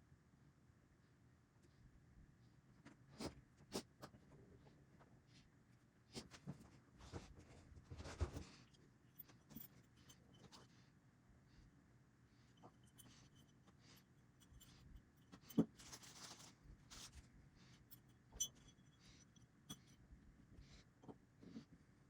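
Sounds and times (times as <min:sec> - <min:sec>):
tools clicking and scraping: 0:12.6 - 0:16.2, 0:17.9 - 0:20.0.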